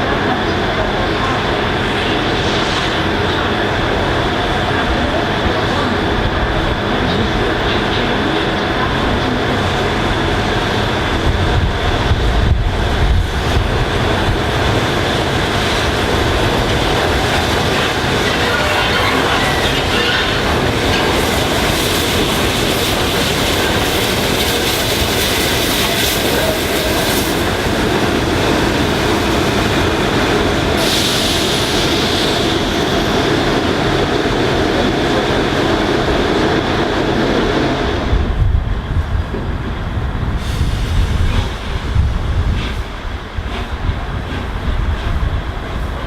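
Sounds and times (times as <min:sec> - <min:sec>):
wind rumble: 0:00.1 - 0:46.0
train wheels clattering over rails: 0:40.4 - 0:46.0.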